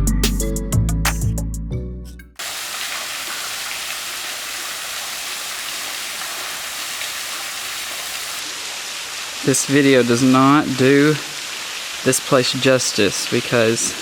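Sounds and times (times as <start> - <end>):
background music with plucked notes: 0.0 - 2.4
waterfall rushing: 2.4 - 14.0.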